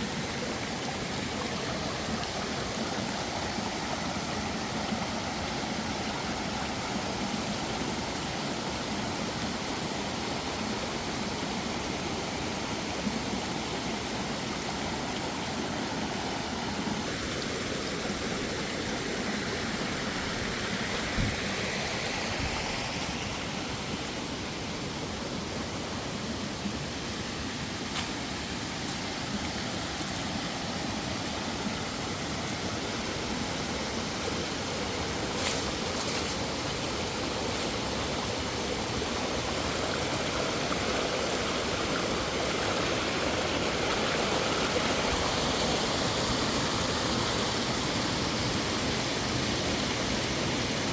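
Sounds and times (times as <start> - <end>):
stream water flowing: 0.0 - 50.9.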